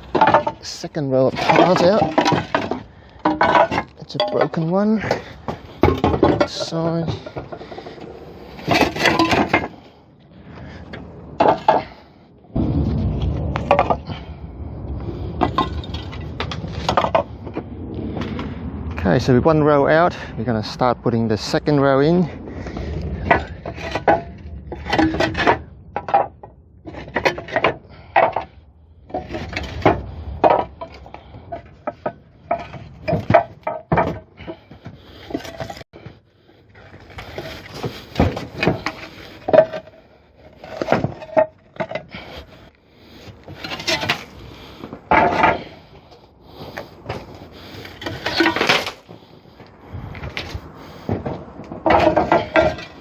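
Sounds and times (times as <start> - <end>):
roof tiles clinking together: 0.0 - 9.9, 11.4 - 12.0, 29.1 - 35.8, 36.8 - 49.6, 50.3 - 53.0.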